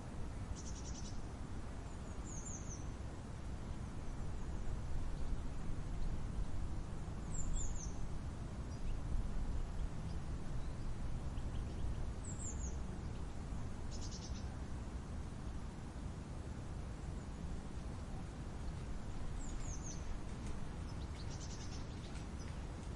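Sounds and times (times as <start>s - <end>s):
low wind rumble: 0.0s - 22.9s
small birds calling: 0.6s - 3.0s, 7.2s - 9.0s, 9.8s - 14.6s, 18.0s - 22.9s.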